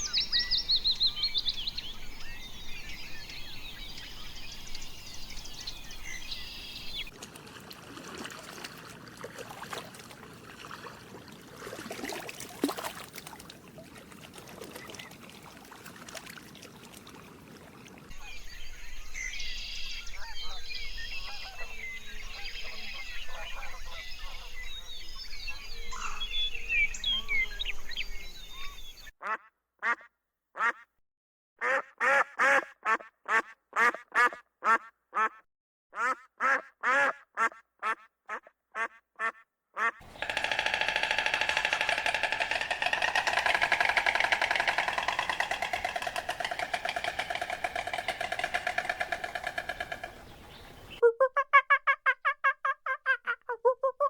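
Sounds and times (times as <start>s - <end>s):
small birds chirping: 0.0s - 7.2s, 40.0s - 51.0s
harsh farm bird calls: 40.0s - 51.0s
outdoor ambience: 40.0s - 51.0s.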